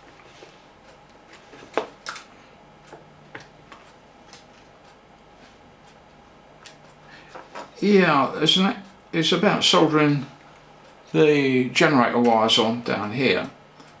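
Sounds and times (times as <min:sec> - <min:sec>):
small parts clicking and tapping: 0:01.7 - 0:02.3.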